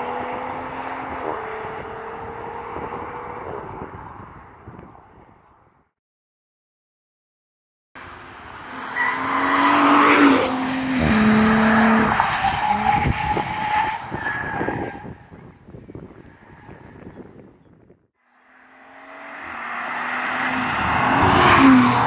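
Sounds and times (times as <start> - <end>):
car engine accelerating past: 18.4 - 22.0.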